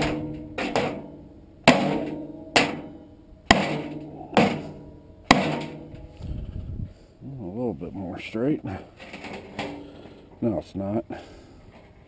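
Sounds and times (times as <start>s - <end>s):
hammer blows on metal: 0.0s - 6.2s.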